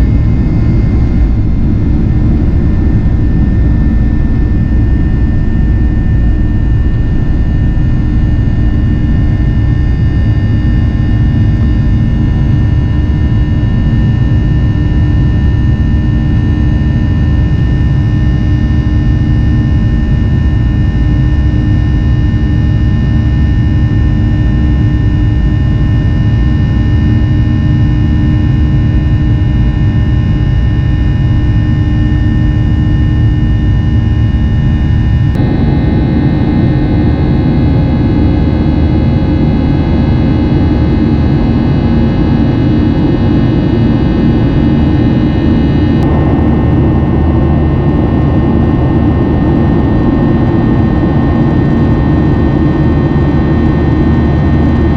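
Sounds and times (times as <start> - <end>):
constant hum: 0.0 - 54.9
jet engines rumbling: 0.0 - 54.9.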